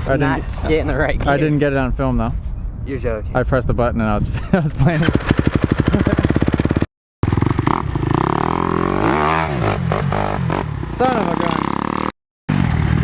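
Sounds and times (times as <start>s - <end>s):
dirt bike engine revving: 5.0s - 13.0s.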